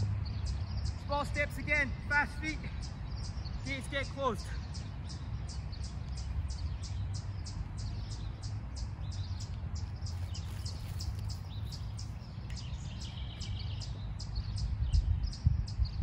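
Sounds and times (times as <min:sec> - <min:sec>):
steady low rumble: 0:00.0 - 0:00.8, 0:05.0 - 0:16.0
bird chirping: 0:00.0 - 0:16.0.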